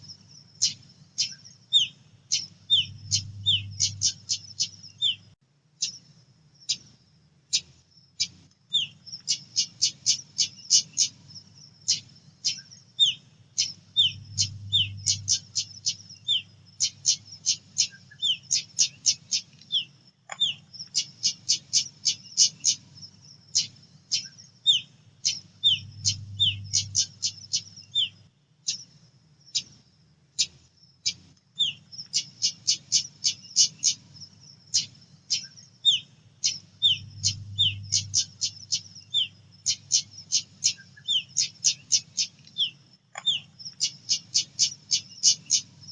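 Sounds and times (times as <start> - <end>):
faint low hum: 0.0 - 45.9
bird calling with sharp chip notes: 34.8 - 45.6.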